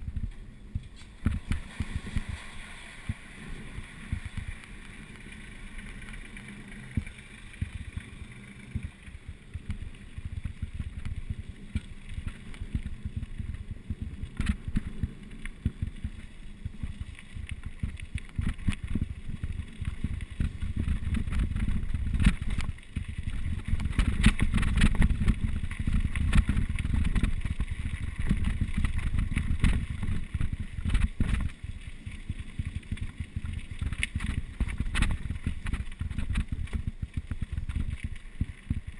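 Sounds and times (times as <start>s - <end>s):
wind buffeting microphone: 17.5s - 31.6s.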